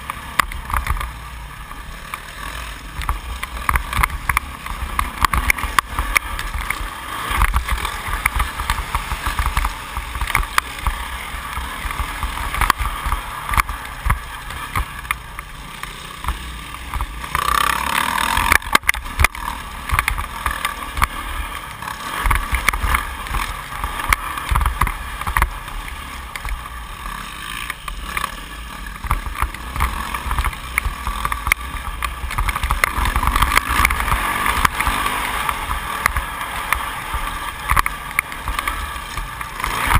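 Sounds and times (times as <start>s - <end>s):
motocross bike engine: 0.0s - 39.9s.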